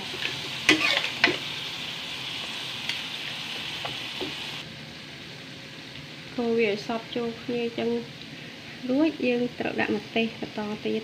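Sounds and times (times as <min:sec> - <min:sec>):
chicken sizzling in a wok: 0:00.0 - 0:11.0
metal spatula scraping a wok: 0:00.1 - 0:01.5.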